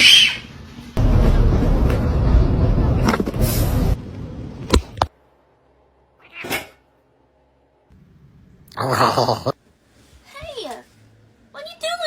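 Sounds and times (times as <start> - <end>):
noisy clatter: 1.0 - 5.1
cat meowing: 6.2 - 6.8.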